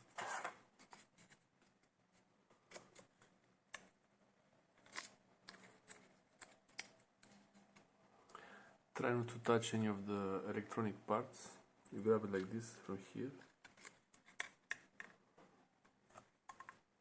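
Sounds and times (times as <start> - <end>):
small clicks and taps: 15.8 - 16.8.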